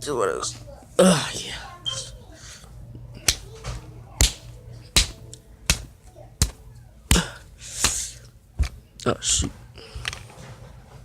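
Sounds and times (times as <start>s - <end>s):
modelling clay slapped by hand: 4.2s - 4.4s, 5.0s - 8.0s.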